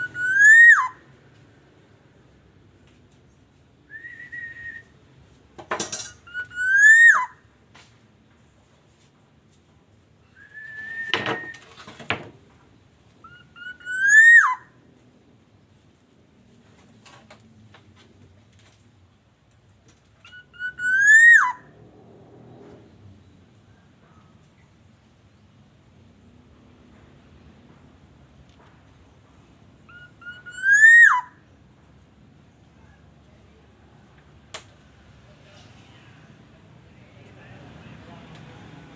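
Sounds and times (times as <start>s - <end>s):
bird fluty whistles: 0.0s - 1.0s, 3.9s - 4.9s, 6.3s - 7.3s, 10.4s - 11.7s, 13.2s - 14.6s, 20.3s - 21.6s, 29.9s - 31.3s.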